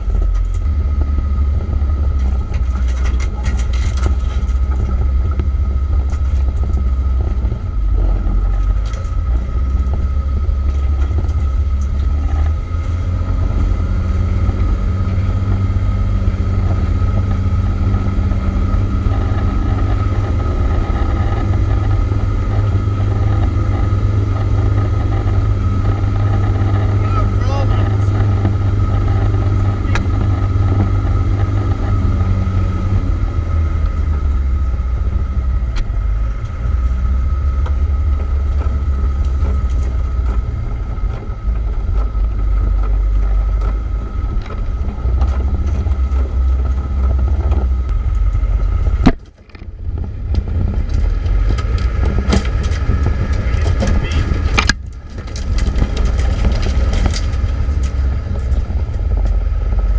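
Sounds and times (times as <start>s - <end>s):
knocks and rattles: 0.0s - 13.6s, 37.6s - 59.9s
constant whine: 0.0s - 59.9s
engine and drivetrain rumble: 0.0s - 59.9s.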